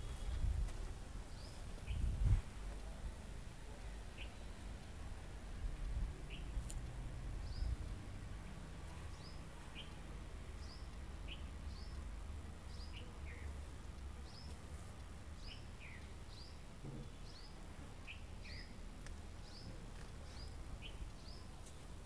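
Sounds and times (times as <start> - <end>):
low rumble of wind: 0.0 - 22.0
bird chirping: 1.3 - 2.1, 3.7 - 4.9, 6.2 - 6.7, 7.4 - 8.0, 8.9 - 13.6, 14.2 - 14.6, 15.3 - 18.8, 19.4 - 21.8.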